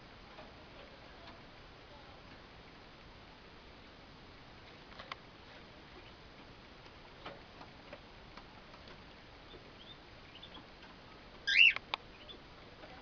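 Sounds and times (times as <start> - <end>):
faint clicks and taps: 4.6 - 9.2
bird chirp: 9.4 - 10.7, 11.4 - 12.4.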